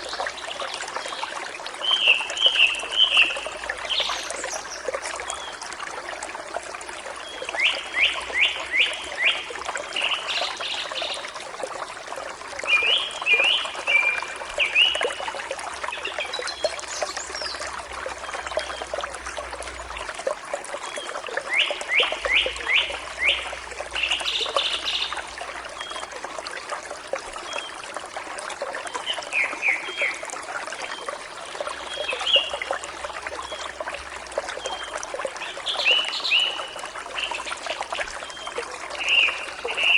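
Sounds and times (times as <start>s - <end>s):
stream flowing: 0.0s - 39.9s
birds singing: 34.6s - 39.9s.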